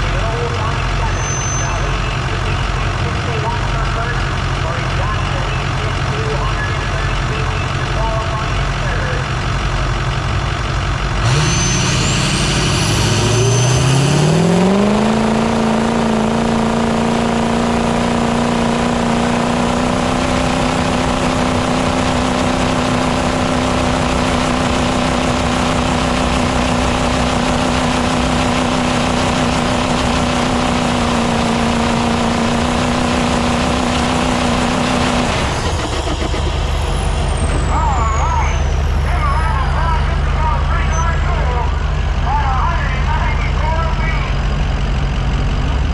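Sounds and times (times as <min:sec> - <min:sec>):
diesel engine revving under load: 0:00.0 - 0:45.9
turbo whistle: 0:01.1 - 0:02.0, 0:11.3 - 0:14.3.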